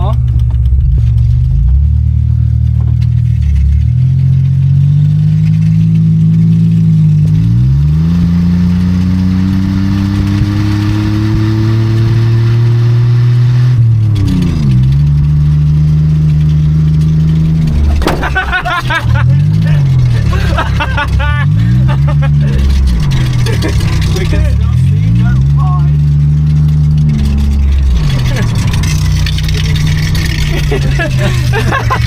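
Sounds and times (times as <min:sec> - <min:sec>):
loud car engine accelerating: 0:00.0 - 0:32.0.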